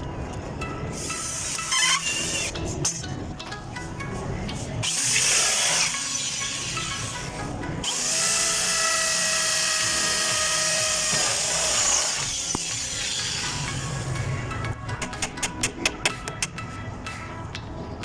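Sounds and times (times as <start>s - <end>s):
power drill whirring: 7.8s - 14.0s.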